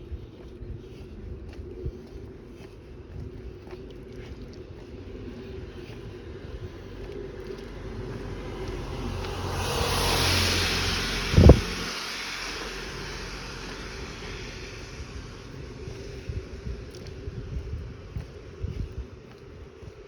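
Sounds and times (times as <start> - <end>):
car passing by: 5.7 - 17.6.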